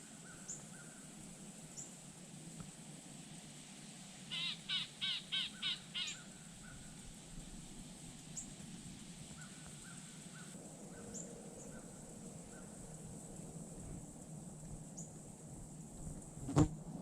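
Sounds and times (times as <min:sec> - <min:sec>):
small birds chirping faintly: 0:00.0 - 0:16.3
crow cawing: 0:04.3 - 0:06.3.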